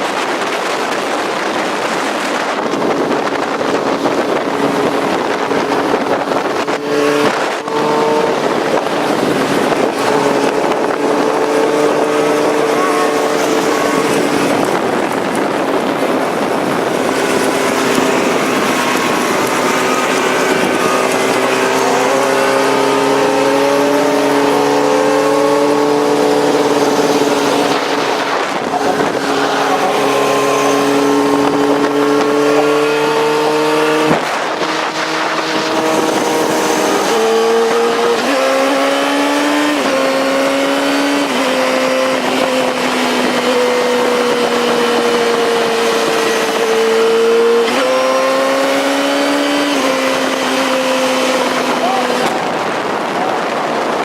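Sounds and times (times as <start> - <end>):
motorcycle engine shifting gears: 0.0 - 54.0
wind rush: 0.0 - 54.0.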